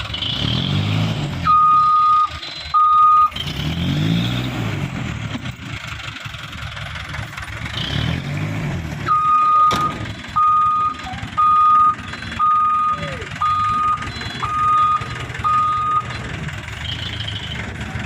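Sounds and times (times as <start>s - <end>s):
truck reversing alarm beeping: 0.0s - 3.4s, 9.0s - 18.0s
diesel engine revving: 0.0s - 18.0s.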